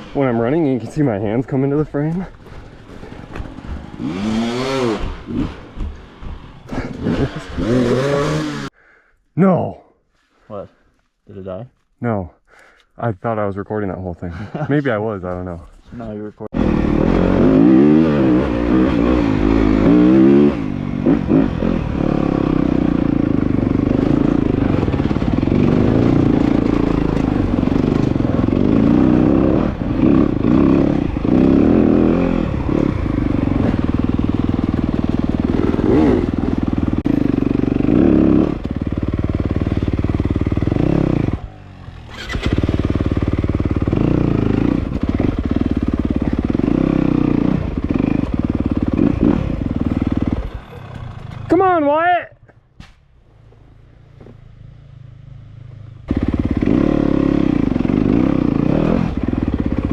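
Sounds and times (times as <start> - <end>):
dirt bike engine revving: 2.9 - 8.7, 16.6 - 51.8, 56.0 - 59.9.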